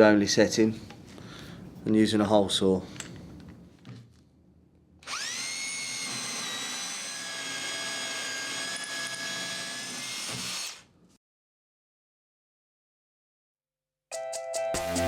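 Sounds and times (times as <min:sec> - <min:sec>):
power drill motor whining: 0:05.0 - 0:10.8.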